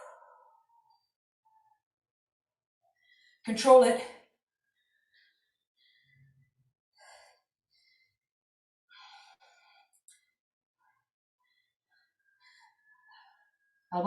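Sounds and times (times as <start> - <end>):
faint breaths: 2.9 - 3.4, 4.5 - 13.9.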